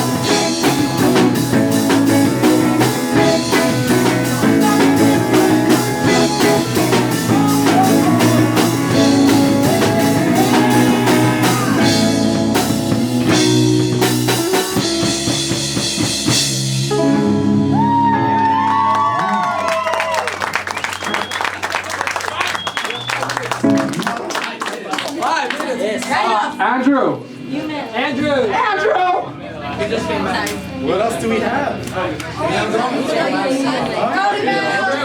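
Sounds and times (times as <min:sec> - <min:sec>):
drum kit: 0:00.0 - 0:18.8
bending guitar notes: 0:00.0 - 0:19.4
live rock band playing: 0:00.0 - 0:24.3.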